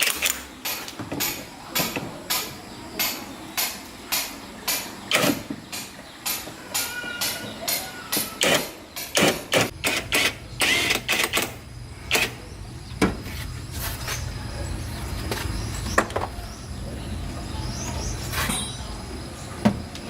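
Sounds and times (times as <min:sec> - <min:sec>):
metal tools clanking: 0:17.7 - 0:19.2.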